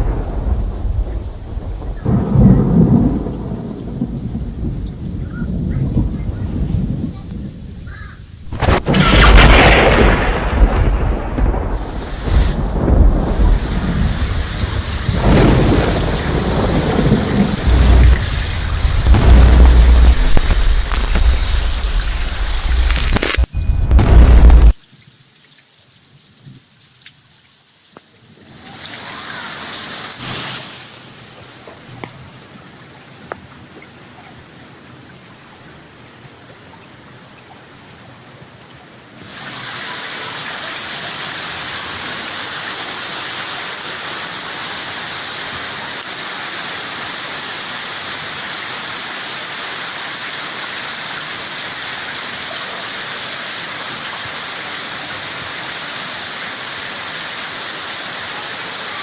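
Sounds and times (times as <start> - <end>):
heavy rain falling: 0.0 - 25.4, 27.7 - 59.0
sharp drip-like clicks: 24.8 - 28.2.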